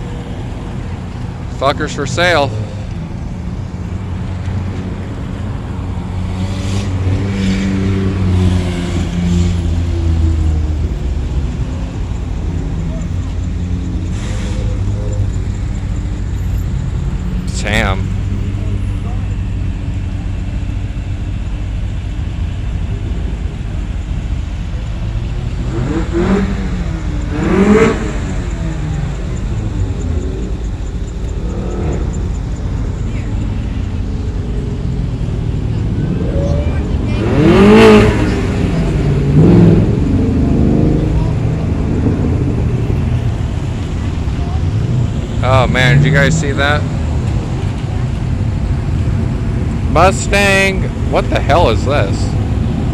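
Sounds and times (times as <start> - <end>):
car engine running low revs: 0.0 - 52.9.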